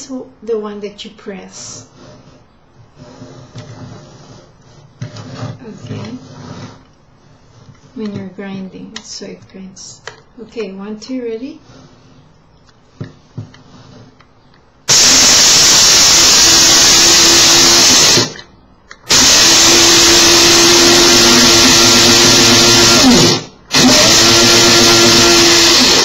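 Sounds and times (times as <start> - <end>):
electric coffee grinder running: 14.9 - 18.4, 19.1 - 26.0.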